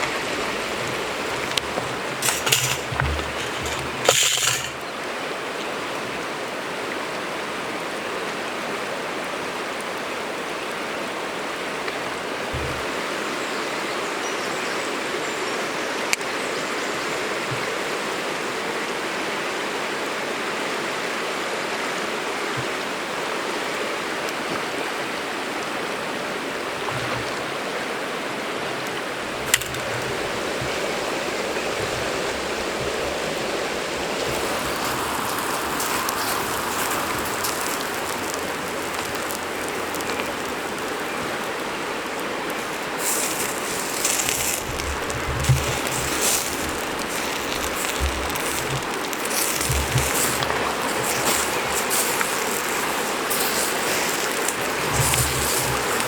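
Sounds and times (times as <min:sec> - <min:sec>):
food sizzling over campfire: 0:00.0 - 0:05.0, 0:12.6 - 0:12.9, 0:29.2 - 0:56.0.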